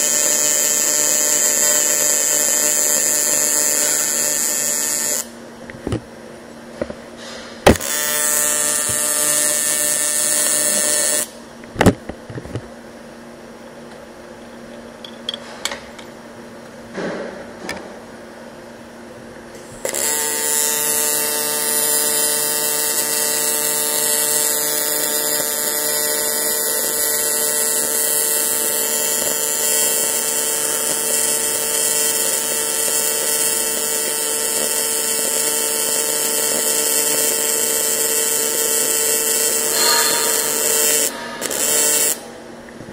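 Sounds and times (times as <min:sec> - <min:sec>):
welding arc buzzing: 0:00.0 - 0:05.4, 0:07.6 - 0:11.4, 0:19.5 - 0:42.4.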